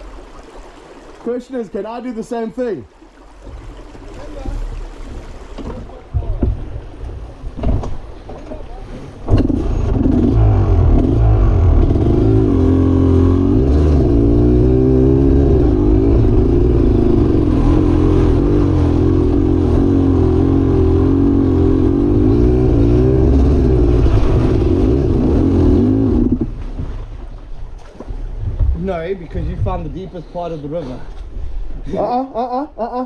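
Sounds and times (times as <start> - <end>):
off-road vehicle engine revving: 9.2 - 26.7.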